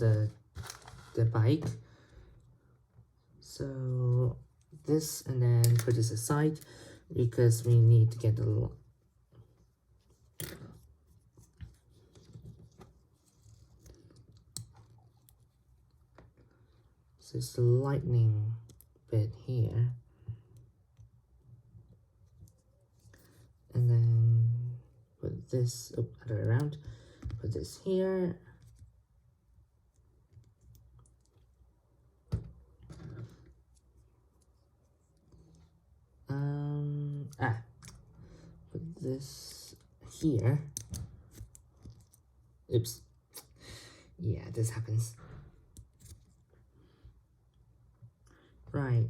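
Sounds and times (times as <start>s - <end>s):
plastic bricks being handled: 0.2s - 1.2s.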